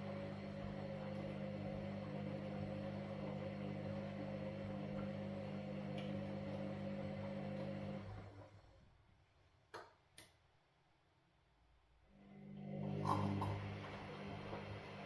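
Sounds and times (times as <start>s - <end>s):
washing machine motor humming: 0.0s - 8.6s, 12.2s - 15.0s.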